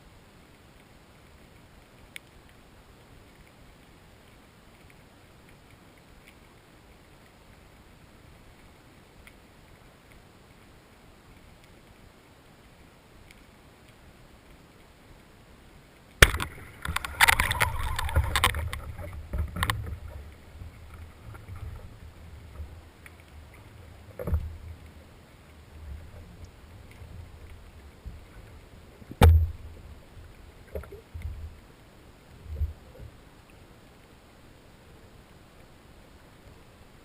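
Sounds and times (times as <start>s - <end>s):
clattering and rustling: 16.3s - 22.7s.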